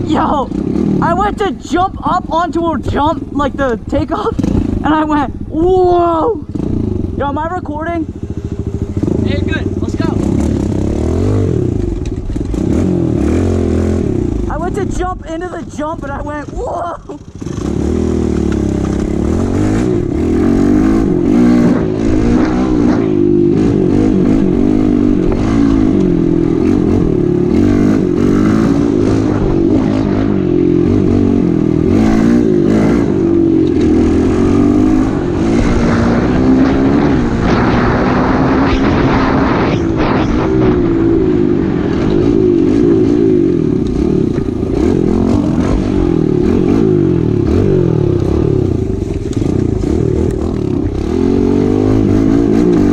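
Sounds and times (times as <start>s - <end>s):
pit bike engine revving: 0.0s - 52.9s.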